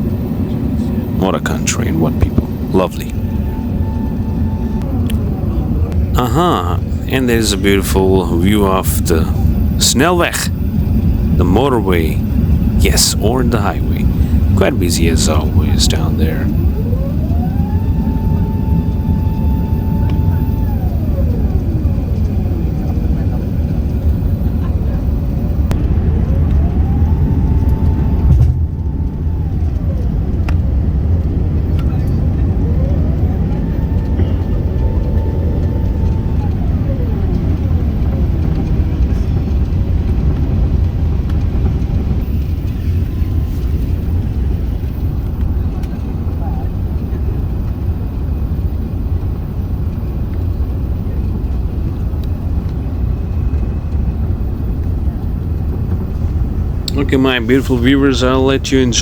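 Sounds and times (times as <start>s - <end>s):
aircraft cabin engine rumble: 0.0s - 59.0s
rising whine: 1.9s - 39.7s.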